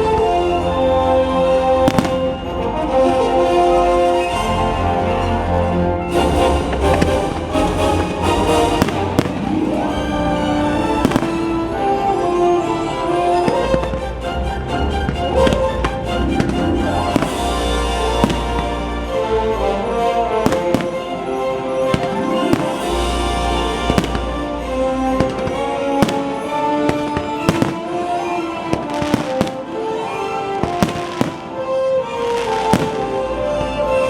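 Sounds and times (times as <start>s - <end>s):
orchestral soundtrack: 0.0s - 34.0s
fireworks bursting and crackling: 1.9s - 2.5s, 6.9s - 11.9s, 17.0s - 19.6s, 20.3s - 34.0s.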